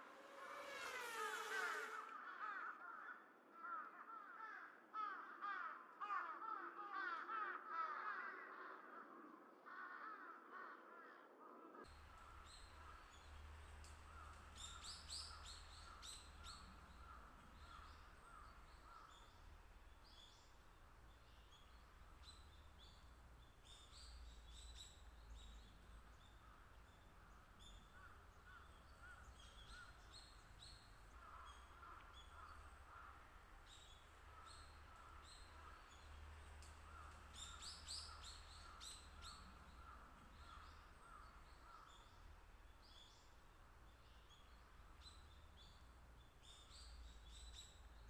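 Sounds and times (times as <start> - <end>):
crow cawing: 1.5 - 8.8, 9.7 - 11.2, 12.2 - 20.5, 26.4 - 30.2, 31.1 - 35.8
low steady rumble: 11.9 - 48.0
small birds chirping: 11.9 - 48.0.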